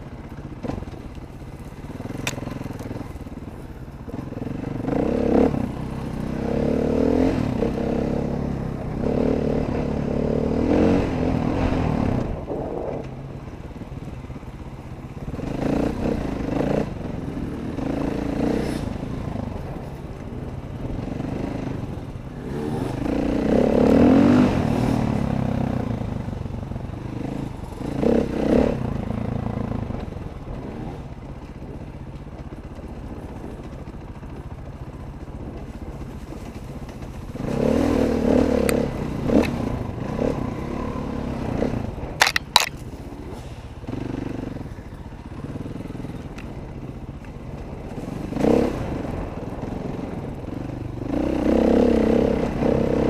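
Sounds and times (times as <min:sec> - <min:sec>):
dirt bike engine revving: 0:04.1 - 0:13.0, 0:15.3 - 0:19.7, 0:22.4 - 0:25.8, 0:37.3 - 0:46.2, 0:51.0 - 0:53.0
sharp clacks: 0:42.2 - 0:42.9.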